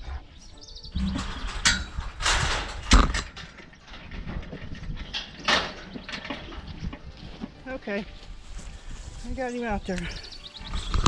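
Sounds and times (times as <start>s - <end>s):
metal gate rattling and clanking: 1.0s - 7.6s.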